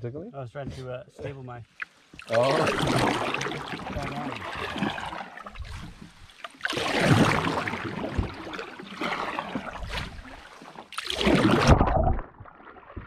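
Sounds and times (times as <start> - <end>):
paddle swishing through water: 1.7 - 13.0.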